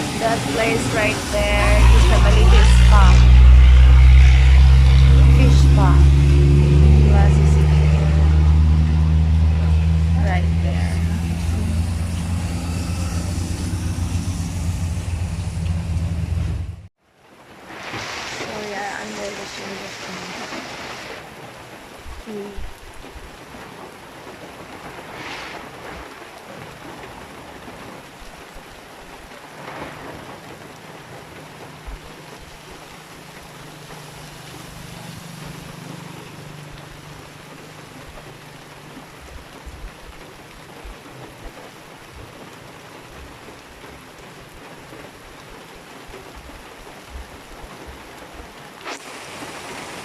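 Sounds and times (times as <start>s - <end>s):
low drone: 0.0s - 16.9s, 32.2s - 38.8s
heavy rain on roof: 0.0s - 50.0s.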